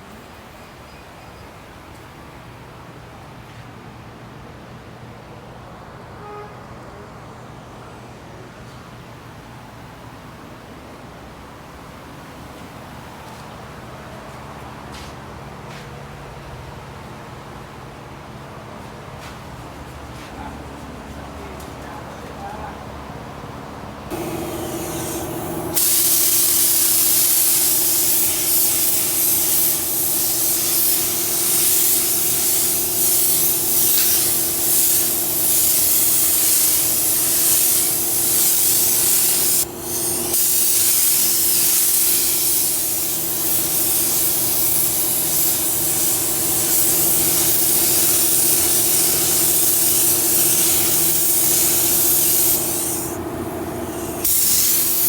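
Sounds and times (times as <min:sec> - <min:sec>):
compressed-air gun hissing: 0:24.1 - 0:55.0
steady low hum: 0:24.1 - 0:55.0.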